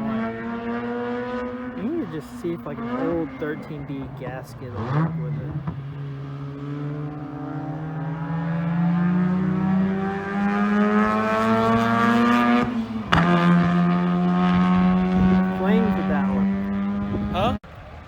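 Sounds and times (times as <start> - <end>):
race car engine revving: 0.0 - 17.6
engine backfire pop: 13.1 - 13.8.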